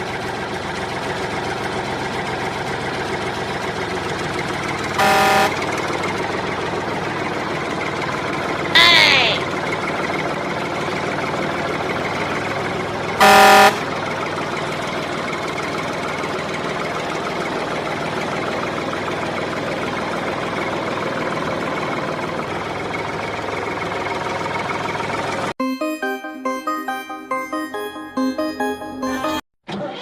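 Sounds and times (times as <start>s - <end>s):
horn honk: 5.0s - 5.8s, 13.2s - 14.0s.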